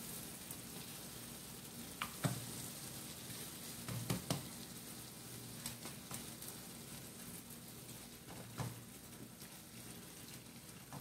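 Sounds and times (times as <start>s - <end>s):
paste frying in a wok: 0.0s - 11.0s
soft knocks in the pan: 2.0s - 2.5s, 3.9s - 4.5s, 8.3s - 8.9s.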